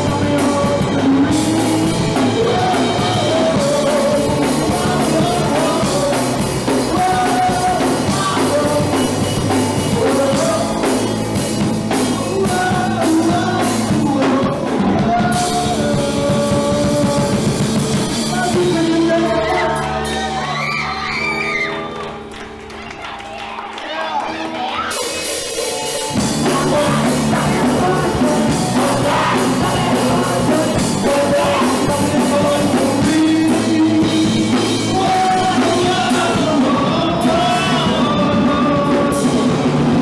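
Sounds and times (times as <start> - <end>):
drums: 0.0 - 40.0
punk rock band playing live: 0.0 - 40.0
shouted singing: 18.3 - 22.2, 22.9 - 40.0.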